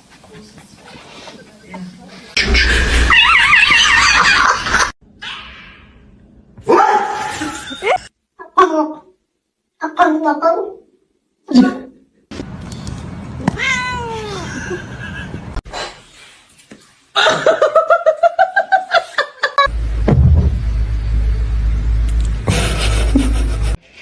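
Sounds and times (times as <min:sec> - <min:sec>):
cat meowing and yowling: 0:13.4 - 0:14.4
steady low rumble: 0:19.7 - 0:23.8.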